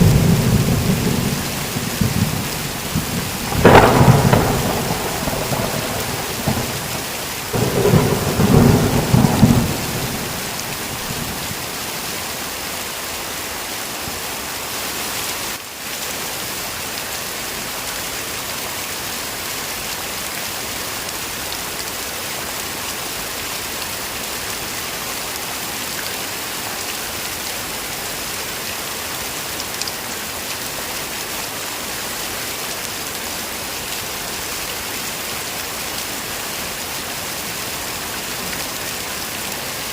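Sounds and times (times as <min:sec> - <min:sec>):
thunder rumbling: 0:00.0 - 0:11.7
heavy rain falling: 0:00.0 - 0:39.9.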